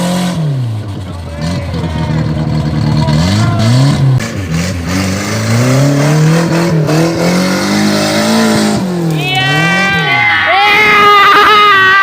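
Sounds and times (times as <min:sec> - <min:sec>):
engine revving hard: 0:00.0 - 0:11.1.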